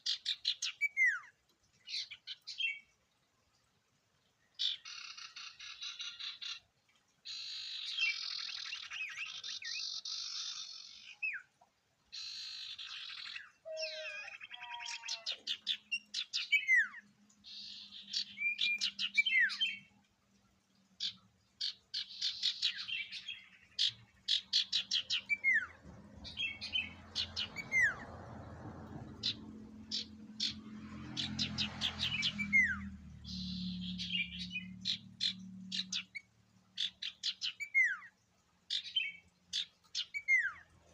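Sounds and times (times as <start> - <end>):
bird singing: 12.2 - 20.0, 21.0 - 28.1, 29.0 - 40.7.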